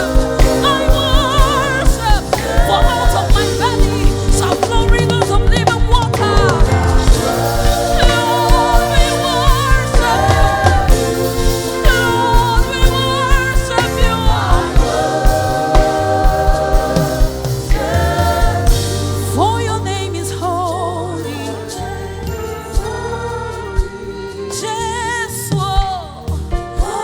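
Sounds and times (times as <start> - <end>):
kick drum beat: 0.0 - 19.0
voices singing held notes: 0.0 - 24.9
band with bass: 0.0 - 27.0.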